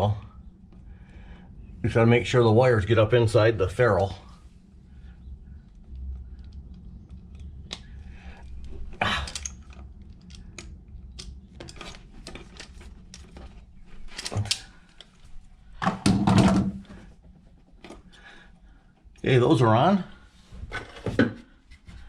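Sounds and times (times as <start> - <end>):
handling noises: 5.5 - 19.2.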